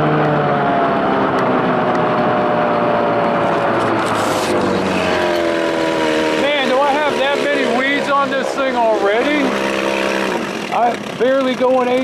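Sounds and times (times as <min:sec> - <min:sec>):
outboard motor running: 0:02.8 - 0:12.0
water noise: 0:03.1 - 0:10.7.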